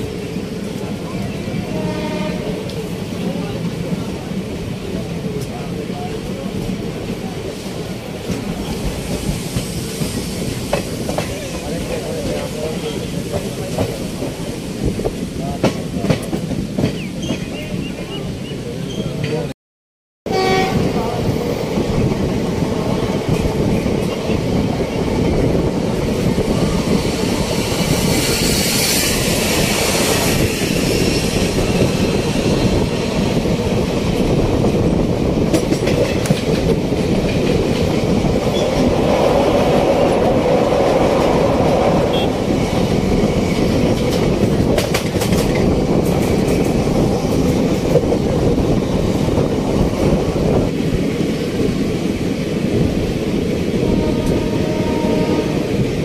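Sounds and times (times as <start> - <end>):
train wheels rumbling on rail: 0.0 - 19.5, 20.3 - 56.0
clickety-clack over rail joints: 8.2 - 18.2, 21.9 - 29.7, 32.7 - 56.0.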